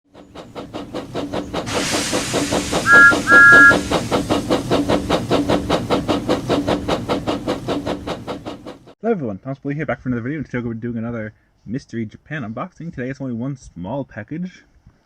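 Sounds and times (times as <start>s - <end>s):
steam hissing: 0.1s - 9.0s
steam locomotive chuffing: 0.1s - 9.0s
train whistle blasts: 2.8s - 3.9s.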